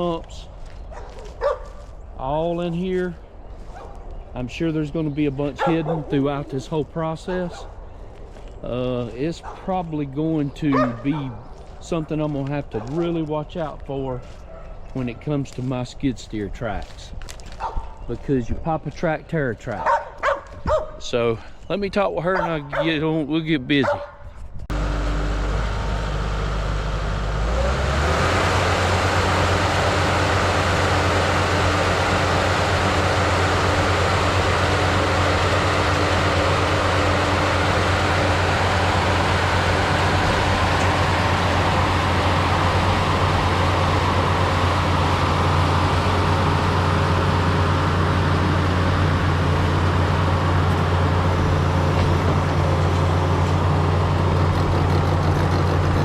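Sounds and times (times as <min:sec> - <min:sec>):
skid steer engine revving: 0:24.7 - 0:56.0.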